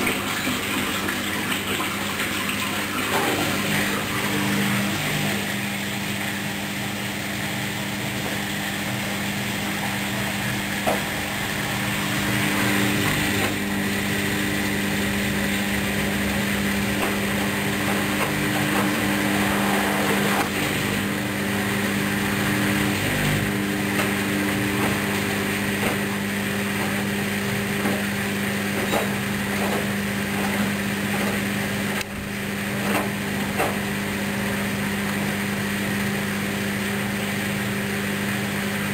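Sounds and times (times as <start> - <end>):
washing machine running: 0.0 - 38.9.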